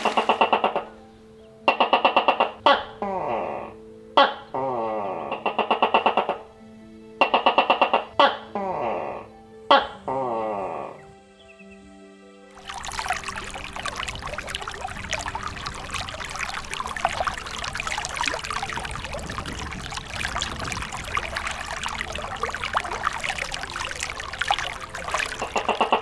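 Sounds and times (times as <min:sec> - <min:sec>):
water splashing and trickling: 0:00.0 - 0:01.0, 0:12.6 - 0:26.0.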